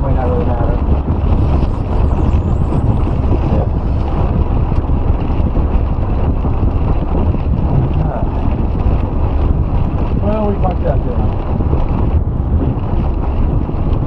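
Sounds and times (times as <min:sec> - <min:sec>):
loud low rumble: 0:00.0 - 0:14.0
wind buffeting microphone: 0:00.0 - 0:14.0.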